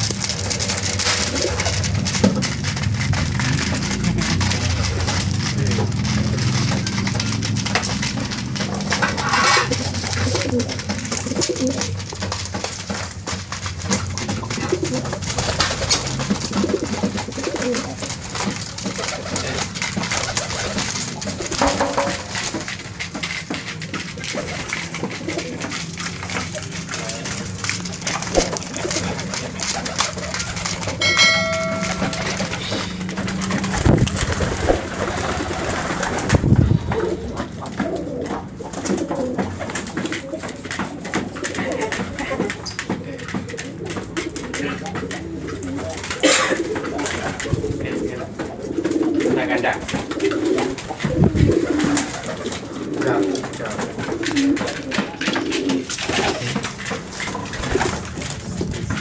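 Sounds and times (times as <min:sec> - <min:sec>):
clicks and rustling: 0:00.0 - 0:59.0
pigeons cooing: 0:00.0 - 0:59.0.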